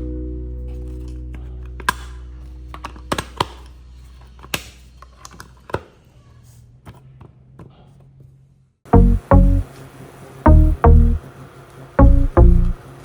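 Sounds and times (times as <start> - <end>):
background music: 0.0 - 3.7, 8.9 - 9.7, 10.5 - 11.2, 12.0 - 12.8.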